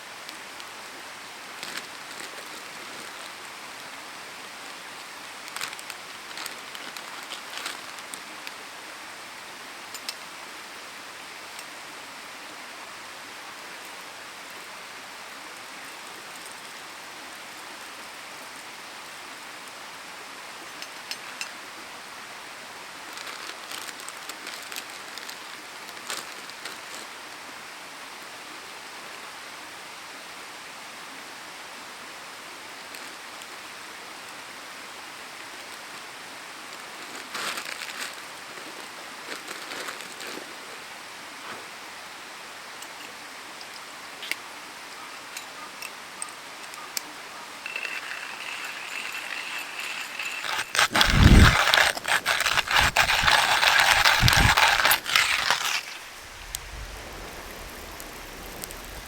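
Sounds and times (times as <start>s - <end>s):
campfire crackling and popping: 47.6s - 59.0s.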